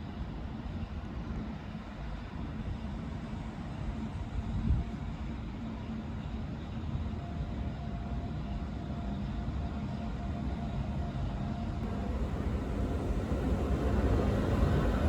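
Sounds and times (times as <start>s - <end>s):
faint steady whine: 11.8s - 15.0s
tram rumbling: 11.8s - 15.0s.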